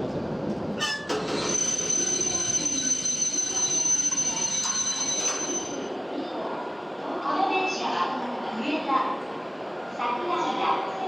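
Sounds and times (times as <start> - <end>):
high-pitched train whine: 0.8 - 6.0.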